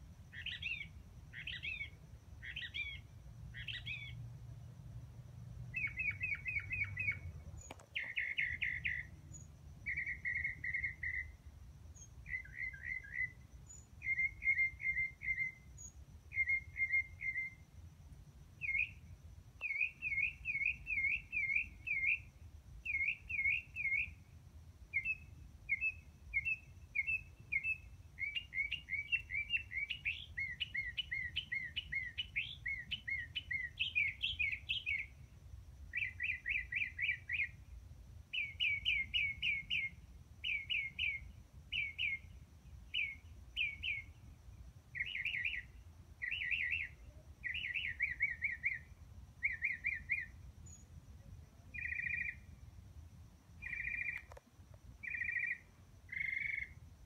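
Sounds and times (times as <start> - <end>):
faint low rumble: 0.0 - 12.4
songbird chirping: 0.0 - 57.0.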